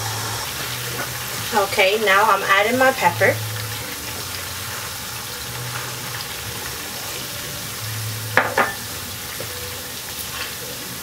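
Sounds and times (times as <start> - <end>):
onion frying in oil: 0.0 - 11.0
spoon knocking against pan: 8.4 - 8.8.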